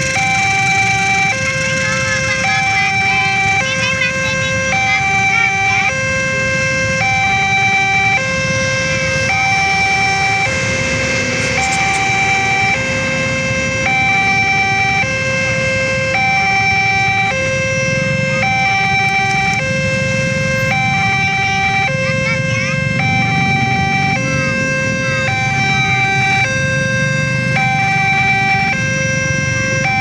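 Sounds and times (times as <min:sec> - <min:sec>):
low traffic rumble: 0:00.0 - 0:30.0
two-tone level crossing alarm: 0:00.0 - 0:30.0.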